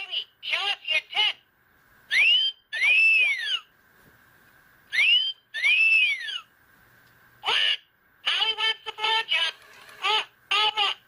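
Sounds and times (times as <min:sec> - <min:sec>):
toy parrot wolf whistles: 0:02.1 - 0:03.6, 0:04.9 - 0:06.4.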